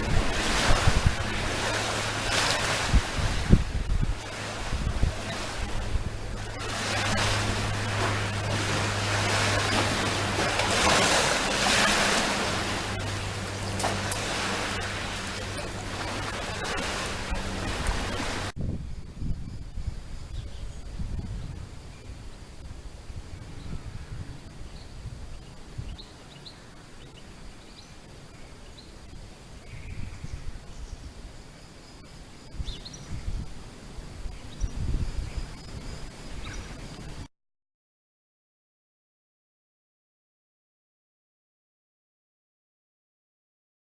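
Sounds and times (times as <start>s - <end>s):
sea waves breaking on shore: 0.0s - 18.6s
steady low hum: 0.0s - 37.3s.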